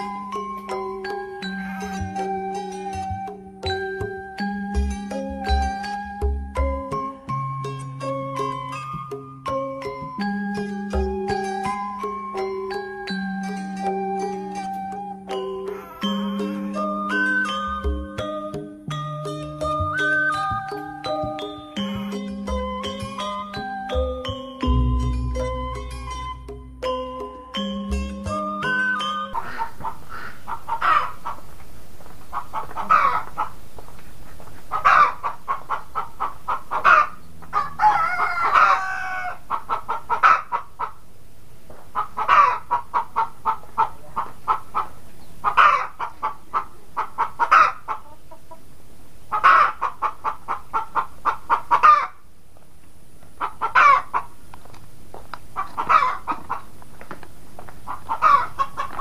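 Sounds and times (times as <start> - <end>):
chickens clucking: 0.0 - 6.1, 11.2 - 18.4, 19.4 - 23.7, 28.8 - 41.1, 41.8 - 52.2, 53.3 - 54.4, 55.4 - 56.8, 57.7 - 59.0
rooster crowing: 29.4 - 31.2, 32.8 - 33.3, 34.8 - 35.3, 36.7 - 39.6, 55.8 - 56.3, 58.2 - 58.9.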